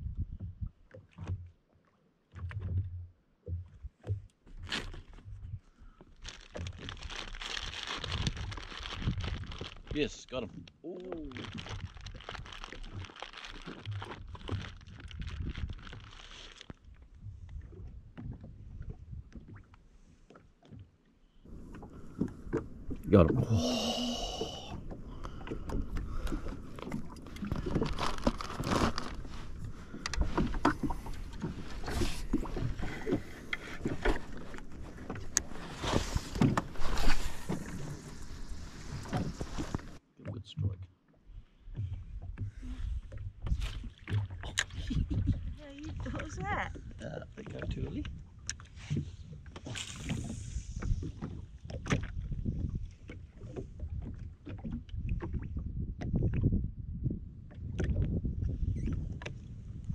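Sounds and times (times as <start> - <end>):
wind on microphone: 0.0 - 0.7, 15.0 - 16.0, 44.6 - 47.0, 48.9 - 59.9
water lapping against hull: 0.0 - 59.9
splashes and knocks: 0.2 - 5.6, 6.2 - 19.7, 24.3 - 40.9, 41.7 - 56.5.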